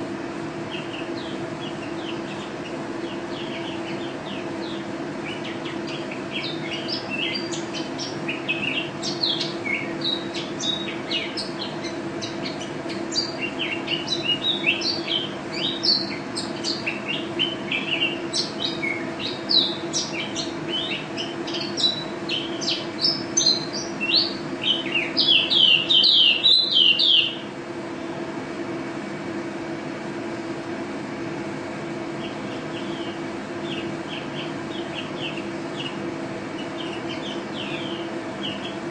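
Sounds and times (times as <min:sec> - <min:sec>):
steady low hum: 0:00.0 - 0:38.9
songbird twittering song: 0:00.6 - 0:27.5, 0:32.2 - 0:38.9.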